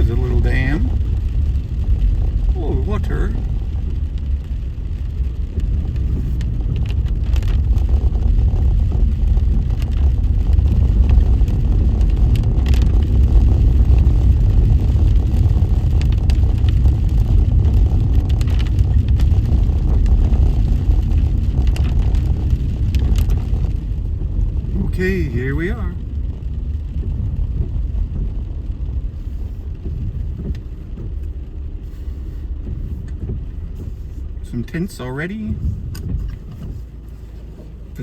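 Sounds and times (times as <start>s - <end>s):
car engine and tyre rumble: 0.0s - 38.0s.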